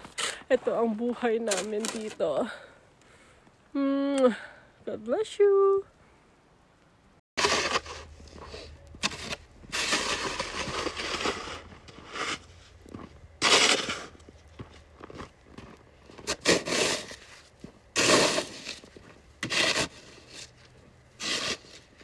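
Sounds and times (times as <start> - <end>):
scraping and crunching in snow: 0.0 - 2.5, 7.4 - 22.0.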